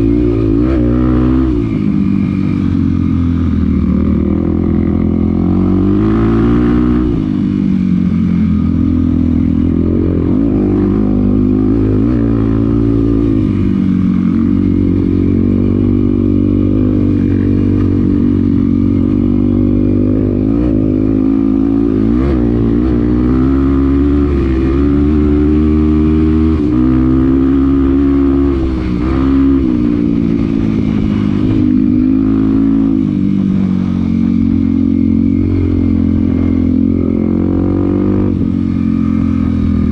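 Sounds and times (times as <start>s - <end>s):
off-road vehicle engine revving: 4.4s - 7.3s.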